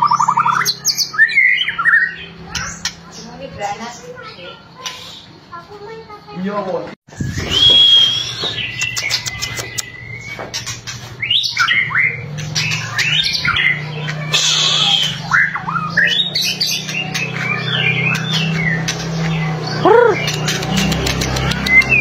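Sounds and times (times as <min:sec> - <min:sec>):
bird whistling song: 0:07.1 - 0:22.0
bird rattling clicks: 0:20.3 - 0:22.0.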